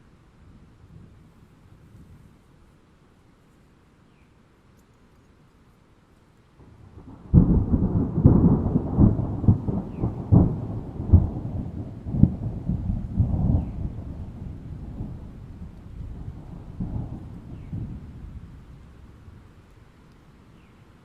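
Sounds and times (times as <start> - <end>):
thunder clap and rumble: 6.6 - 19.5.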